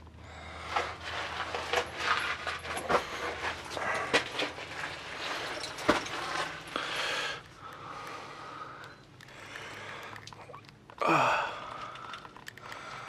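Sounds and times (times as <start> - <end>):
footsteps on rock and mud: 0.7 - 6.7.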